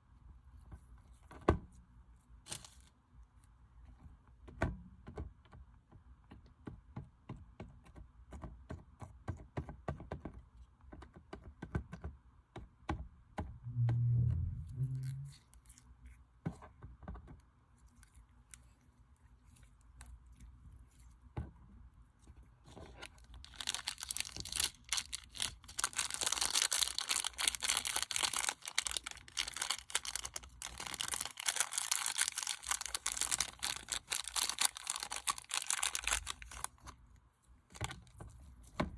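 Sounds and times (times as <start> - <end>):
low thud: 13.4 - 15.3
slime squished by hand: 22.8 - 36.9.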